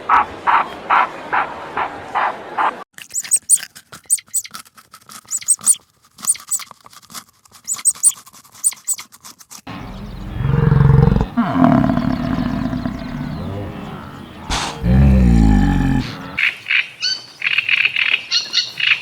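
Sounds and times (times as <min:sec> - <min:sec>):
farm animal low call: 0:09.7 - 0:16.4.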